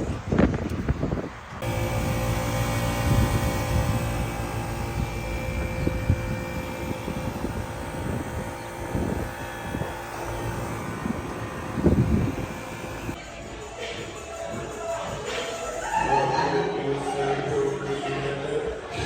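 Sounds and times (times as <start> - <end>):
wind buffeting microphone: 0.0 - 13.2
hvac unit humming: 0.4 - 13.2.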